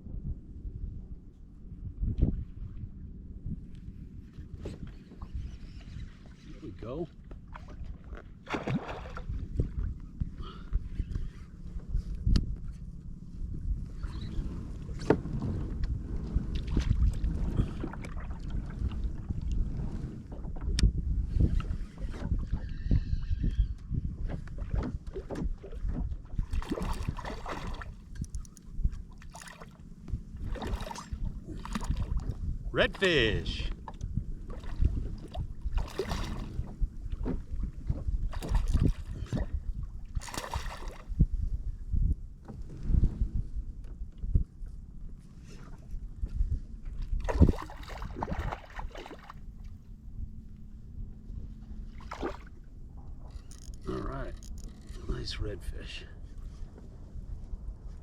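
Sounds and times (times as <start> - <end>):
wind: 0.0 - 58.0
water rumbling: 7.4 - 10.4, 14.7 - 20.8, 24.4 - 41.8, 47.1 - 54.8
noisy splashing: 8.4 - 9.4, 26.4 - 28.2, 30.4 - 33.5, 34.5 - 36.7, 40.1 - 41.1, 47.2 - 49.5, 51.9 - 52.6.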